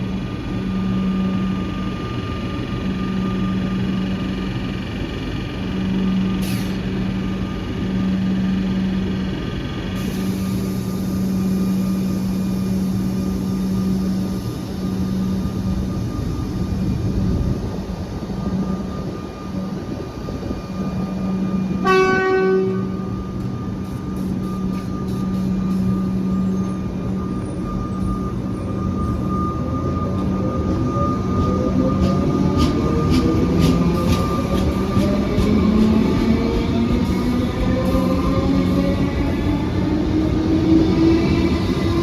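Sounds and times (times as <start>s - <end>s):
electric train hum: 0.0s - 42.0s
train horn toot: 21.8s - 23.1s.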